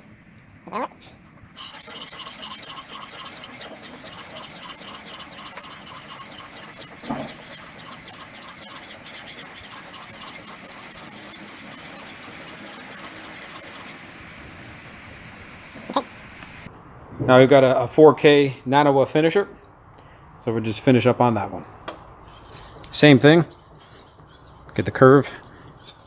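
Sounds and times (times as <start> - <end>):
knife grinding on whetstone: 1.6 - 14.0, 22.3 - 26.0.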